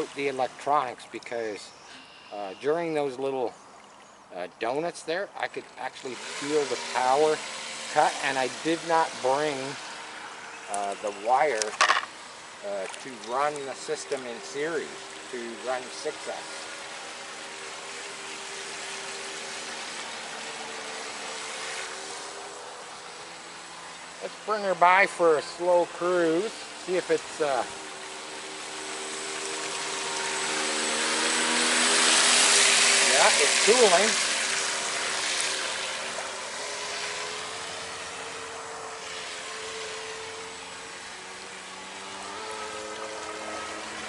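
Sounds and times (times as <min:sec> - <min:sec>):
electric boat motor whine: 0:01.8 - 0:02.9, 0:06.0 - 0:44.0
even hiss: 0:05.5 - 0:44.0.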